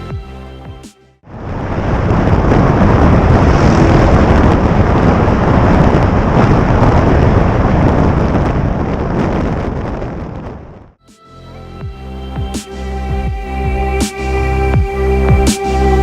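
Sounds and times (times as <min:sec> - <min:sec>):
wind buffeting microphone: 0:01.2 - 0:11.0.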